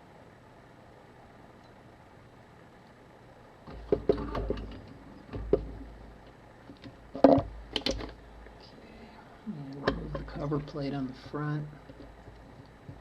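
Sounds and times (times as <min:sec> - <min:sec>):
low handling bumps: 0:03.7 - 0:08.3.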